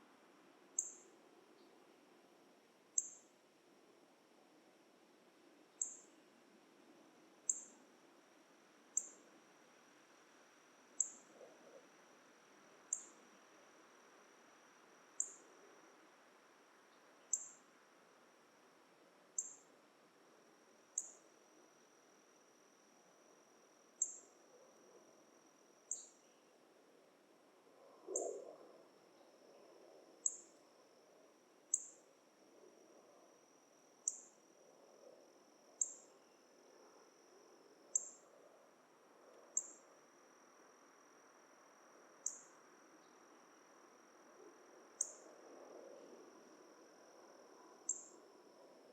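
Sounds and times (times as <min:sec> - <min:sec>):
high-pitched insect trill: 0:00.8 - 0:01.1, 0:03.0 - 0:03.3, 0:05.8 - 0:06.1, 0:07.5 - 0:07.8, 0:09.0 - 0:09.2, 0:11.0 - 0:11.9, 0:12.9 - 0:15.6, 0:16.9 - 0:17.7, 0:19.4 - 0:19.7, 0:20.8 - 0:21.9, 0:23.4 - 0:26.5, 0:29.9 - 0:32.2, 0:33.0 - 0:38.8, 0:39.4 - 0:48.9
sharp high insect chirp: 0:00.8 - 0:01.1, 0:03.0 - 0:03.3, 0:05.8 - 0:06.1, 0:07.5 - 0:07.8, 0:09.0 - 0:09.2, 0:11.0 - 0:11.4, 0:12.9 - 0:13.2, 0:15.1 - 0:15.5, 0:17.2 - 0:17.7, 0:19.4 - 0:19.7, 0:20.9 - 0:21.3, 0:24.0 - 0:24.4, 0:25.8 - 0:26.4, 0:30.2 - 0:30.6, 0:31.7 - 0:32.1, 0:34.0 - 0:34.4, 0:35.8 - 0:36.4, 0:37.9 - 0:38.3, 0:39.5 - 0:39.9, 0:42.2 - 0:43.2, 0:45.0 - 0:45.3, 0:47.8 - 0:48.2.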